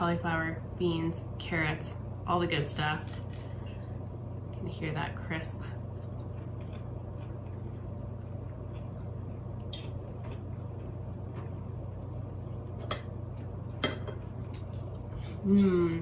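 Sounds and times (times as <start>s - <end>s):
steady low hum: 0.0s - 16.0s
chewing crispy food: 5.7s - 11.7s.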